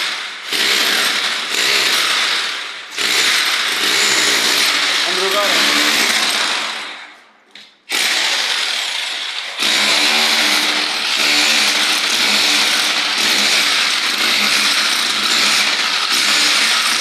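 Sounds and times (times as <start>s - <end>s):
power tool hissing: 8.0s - 17.0s.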